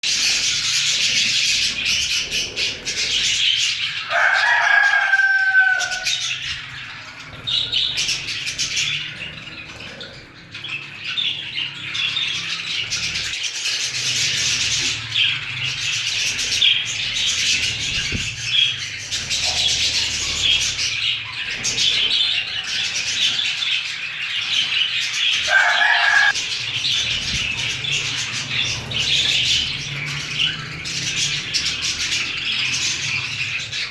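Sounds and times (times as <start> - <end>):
budgerigars chattering: 0.0 - 33.9
drawn-out bird call: 25.2 - 33.9.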